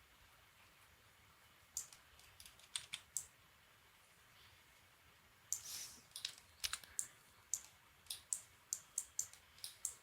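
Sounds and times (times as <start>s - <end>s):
mouse and keyboard clicks: 1.7s - 3.3s, 5.5s - 10.0s.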